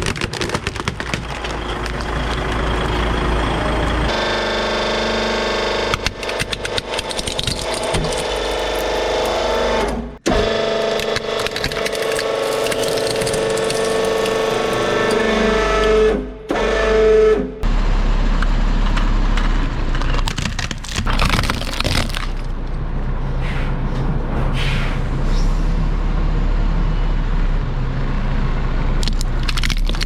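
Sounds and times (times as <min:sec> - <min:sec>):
sharp cracks: 0:00.0 - 0:02.4, 0:05.9 - 0:09.9, 0:10.8 - 0:15.2, 0:20.2 - 0:22.5, 0:29.0 - 0:30.0
truck engine rumbling: 0:00.0 - 0:16.8, 0:17.6 - 0:30.0
hydraulic press motor whining: 0:01.5 - 0:17.5.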